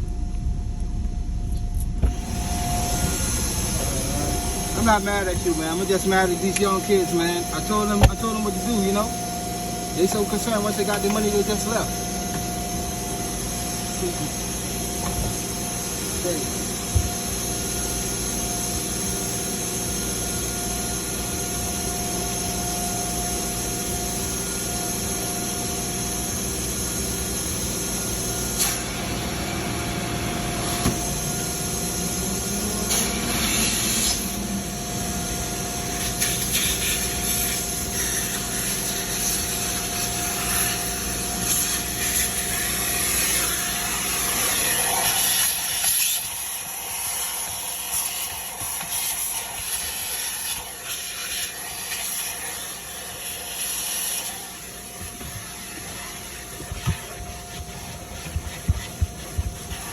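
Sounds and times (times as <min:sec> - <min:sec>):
machine drone: 0:00.0 - 0:44.9.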